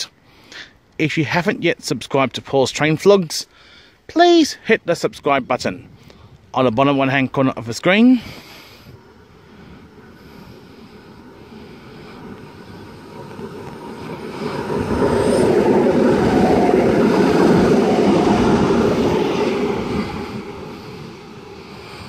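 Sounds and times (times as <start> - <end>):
electric train passing: 8.4 - 22.0.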